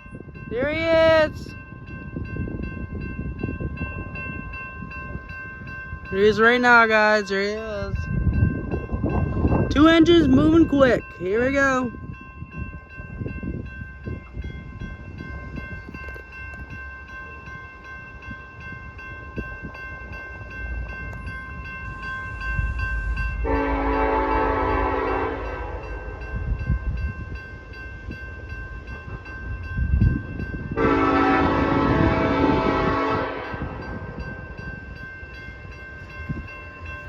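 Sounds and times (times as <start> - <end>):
diesel locomotive engines rumbling: 0.0 - 37.0
train air horn blast: 23.4 - 25.8, 30.8 - 33.8.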